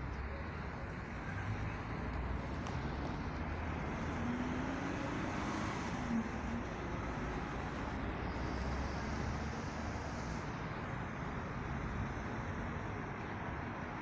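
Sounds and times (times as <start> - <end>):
road traffic passing cars: 0.0 - 14.0.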